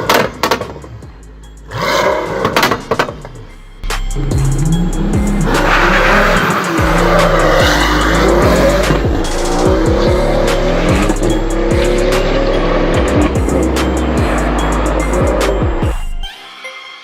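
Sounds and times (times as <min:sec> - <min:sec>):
car engine revving: 0:00.0 - 0:16.2
music with deep bass: 0:00.0 - 0:16.3
quick hi-hat beat: 0:03.8 - 0:16.2.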